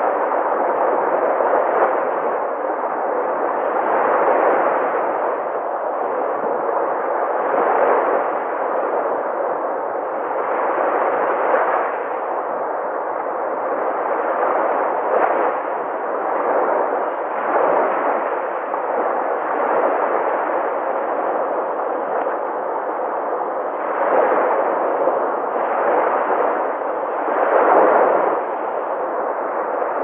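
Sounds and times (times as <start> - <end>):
sea waves breaking: 13.1 - 30.0.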